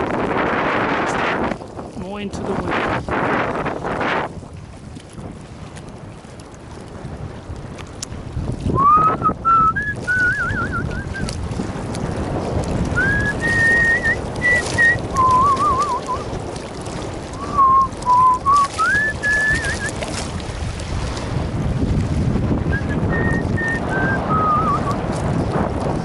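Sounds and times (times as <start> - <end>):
wind noise on microphone: 0.0 - 26.0
person whistling a tune: 8.8 - 11.3, 13.0 - 16.2, 17.4 - 19.9, 22.7 - 25.0.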